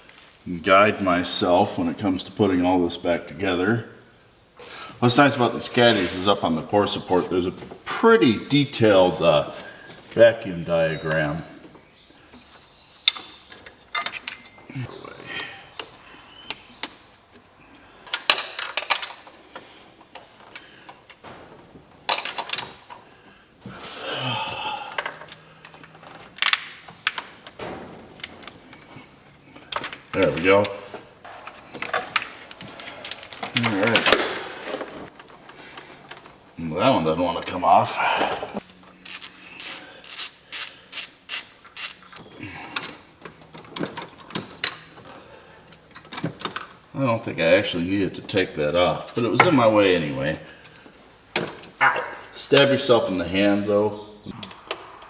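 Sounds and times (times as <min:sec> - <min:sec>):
metal hand tools clinking: 0:18.1 - 0:23.2.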